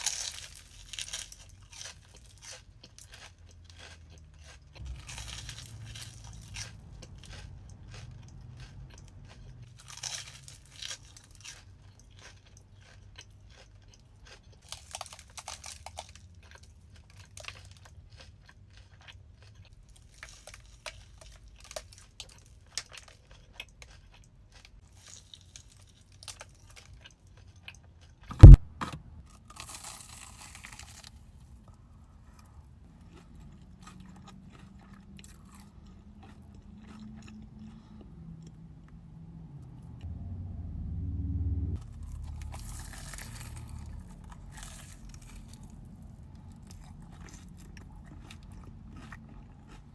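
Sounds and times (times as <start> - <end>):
crunching bites and chewing: 0.0 - 40.0, 41.8 - 49.9
low steady hum: 4.7 - 10.6, 31.2 - 49.9
sharp knock: 28.3 - 29.0.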